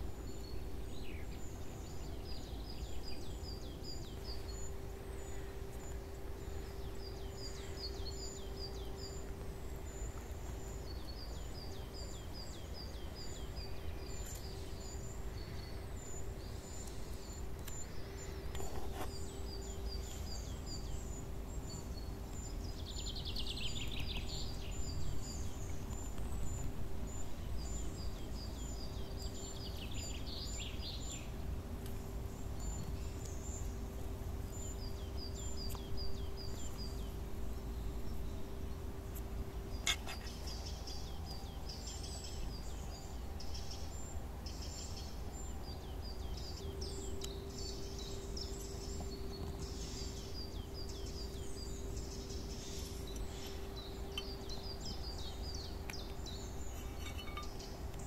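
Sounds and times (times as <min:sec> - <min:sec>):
birds chirping: 0:00.0 - 0:58.0
low steady hum: 0:00.0 - 0:58.0.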